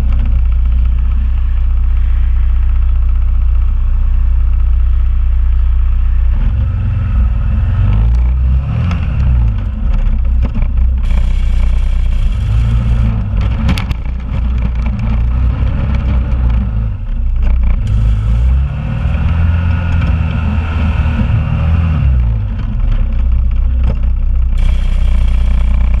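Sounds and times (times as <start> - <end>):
atv engine revving: 0.0 - 5.3, 5.9 - 26.0
clatter knocks: 12.6 - 16.7.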